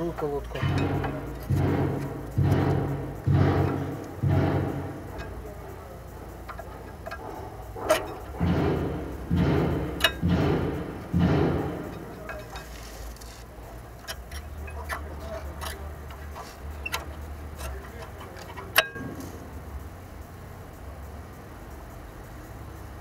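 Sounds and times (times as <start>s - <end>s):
metallic clicks and clinks: 0.0s - 19.9s
rough scraping: 7.9s - 18.7s.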